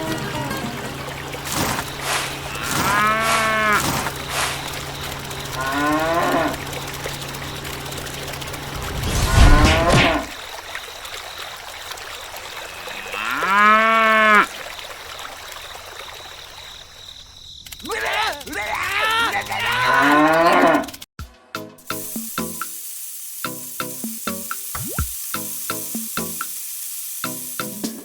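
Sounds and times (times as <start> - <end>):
cattle mooing: 2.0 - 4.6, 5.5 - 6.6, 12.7 - 14.5, 19.3 - 21.0.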